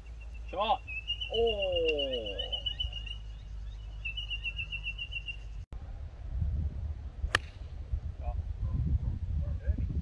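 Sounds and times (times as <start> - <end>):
high fast bird trill: 0.0 - 5.6.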